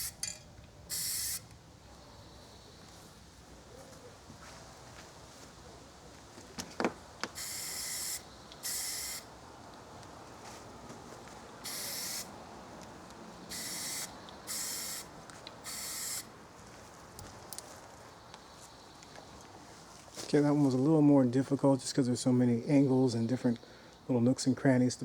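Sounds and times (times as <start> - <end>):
spray paint can hissing: 0.9 - 1.4, 7.4 - 9.3, 11.6 - 12.3, 13.5 - 16.3.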